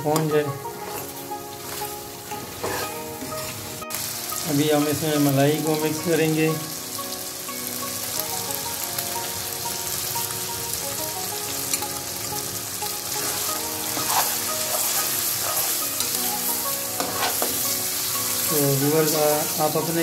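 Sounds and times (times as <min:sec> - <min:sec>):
meat sizzling in hot oil: 0:00.0 - 0:20.0
metal spoon scraping pot: 0:02.6 - 0:03.0, 0:17.0 - 0:17.6.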